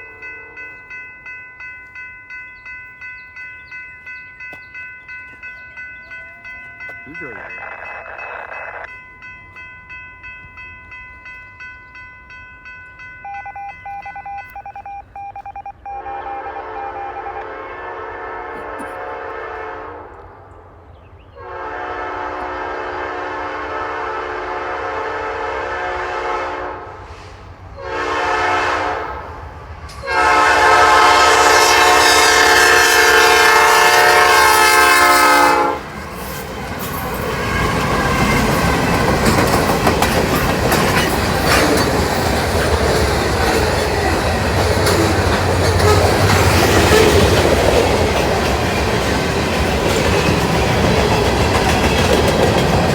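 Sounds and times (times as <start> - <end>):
locomotive engine rumble: 0.0 - 13.3
locomotive air horn blasts: 16.0 - 20.2, 21.4 - 29.3, 30.0 - 35.9
train wheels clattering on rails: 29.8 - 52.9.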